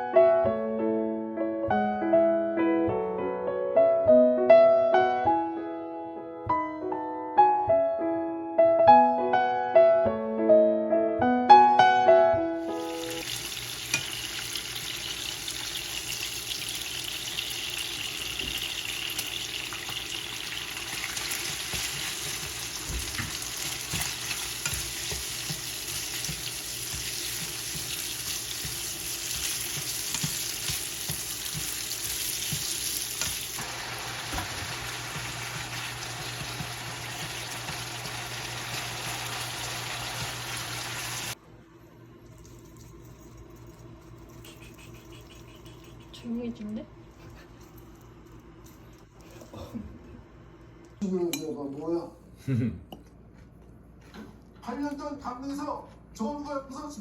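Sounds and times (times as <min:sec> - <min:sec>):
food sizzling in a pan: 0:12.6 - 0:41.4.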